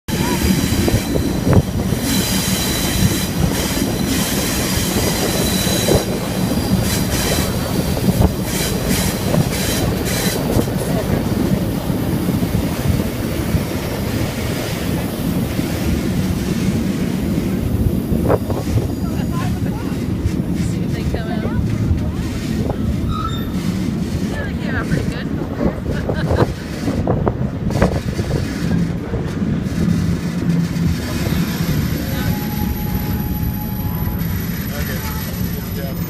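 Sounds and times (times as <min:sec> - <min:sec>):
train wheels rumbling on rails: 0:00.0 - 0:36.0
high-pitched wheel squeal: 0:00.2 - 0:07.5, 0:23.1 - 0:23.7, 0:32.0 - 0:36.0.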